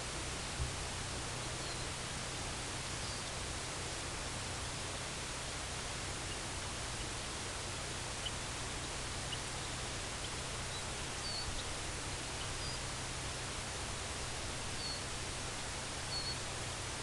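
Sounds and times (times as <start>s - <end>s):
steady outdoor hiss: 0.0s - 17.0s
faint bird chirps: 1.6s - 2.0s, 3.0s - 3.4s, 8.1s - 13.7s, 14.7s - 15.2s, 16.0s - 16.5s.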